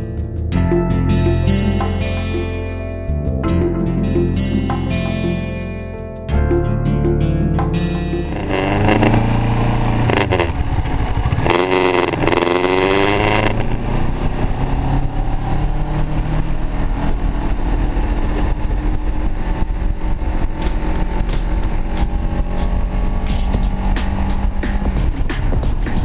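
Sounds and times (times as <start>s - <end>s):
motorcycle engine running: 8.1s - 26.0s.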